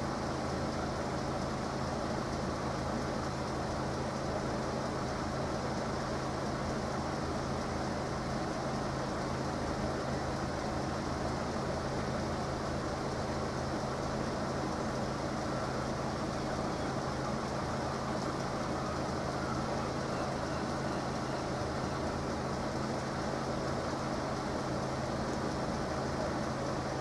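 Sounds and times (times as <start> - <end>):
street noise: 0.0 - 27.0
vehicles idling: 0.0 - 27.0.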